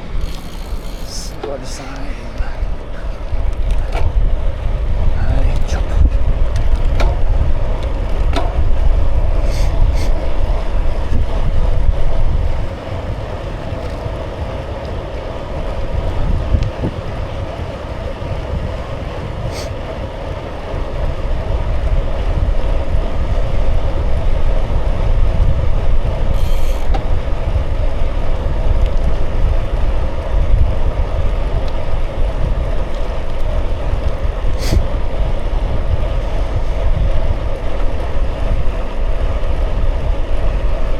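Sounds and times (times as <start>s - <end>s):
faint clicks: 0.0s - 4.2s
tyres rolling: 0.0s - 24.7s
wind buffeting microphone: 0.0s - 40.9s.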